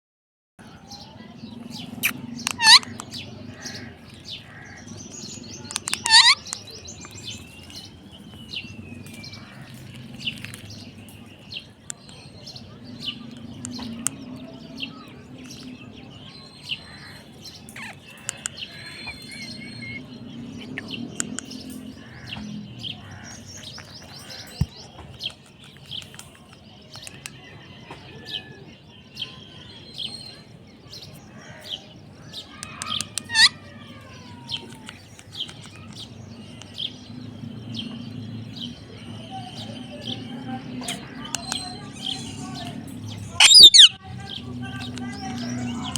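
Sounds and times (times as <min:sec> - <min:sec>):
parrot chirping: 0:02.0 - 0:03.2, 0:05.6 - 0:07.6, 0:17.8 - 0:21.6, 0:32.6 - 0:33.6, 0:40.9 - 0:44.0.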